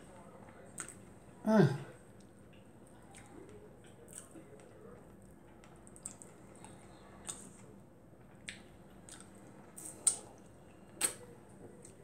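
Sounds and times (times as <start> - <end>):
wet chewing sounds: 0.5 - 1.1, 2.1 - 12.0
lip smacks: 11.0 - 12.0.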